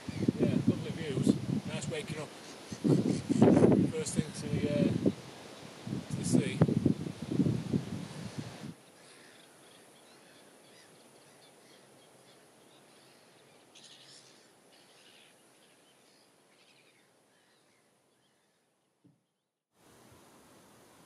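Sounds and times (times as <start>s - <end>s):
low steady hiss: 0.0s - 21.0s
faint bird calls: 2.2s - 3.6s, 8.8s - 19.5s.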